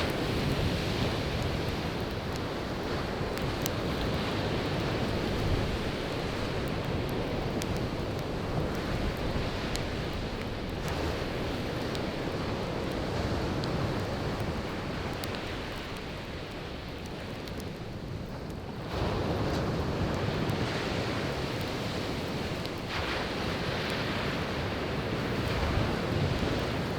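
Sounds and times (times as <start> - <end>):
campfire crackling: 0.0 - 26.9.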